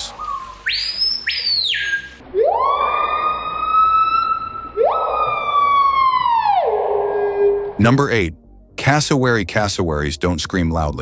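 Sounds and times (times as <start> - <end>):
bird whistled calls: 0.0 - 2.2.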